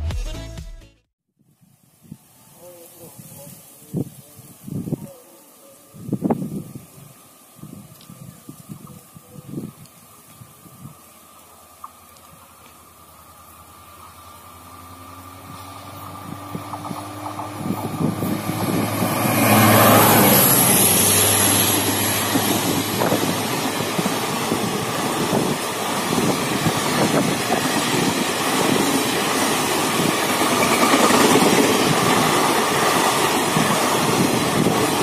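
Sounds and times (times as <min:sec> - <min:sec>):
passenger train passing: 0:04.4 - 0:35.0
wheels clattering over rails: 0:15.3 - 0:35.0.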